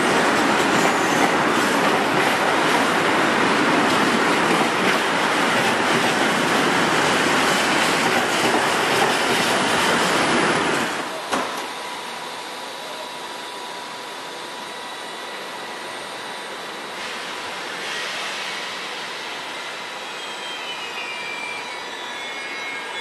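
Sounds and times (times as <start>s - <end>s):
wheels clacking on rails: 0.0s - 11.4s
freight train rumbling past: 0.0s - 11.7s.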